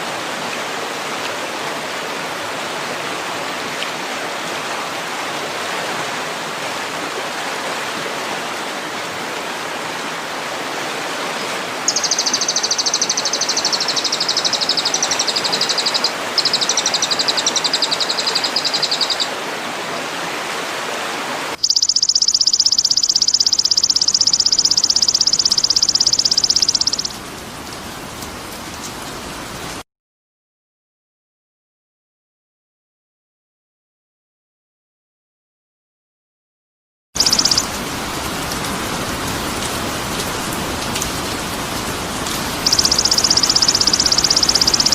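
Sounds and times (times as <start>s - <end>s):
running water: 0.0s - 29.8s, 37.2s - 44.9s
bird trilling: 11.9s - 19.3s, 21.6s - 27.1s, 37.2s - 37.8s, 42.6s - 44.9s.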